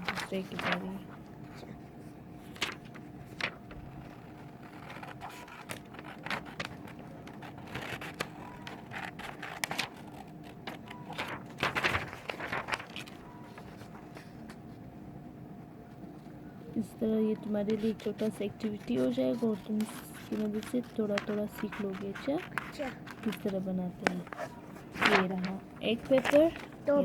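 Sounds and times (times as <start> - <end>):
paper rustling: 0.0 - 14.9, 15.8 - 27.0
scissors snipping paper: 3.9 - 13.4, 17.6 - 26.7.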